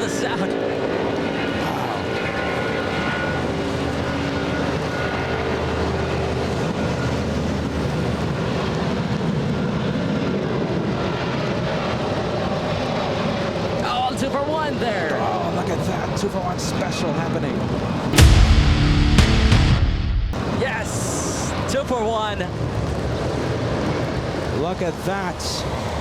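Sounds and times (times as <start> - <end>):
jet engine whine: 0.0 - 26.0
low rumble: 18.1 - 20.6.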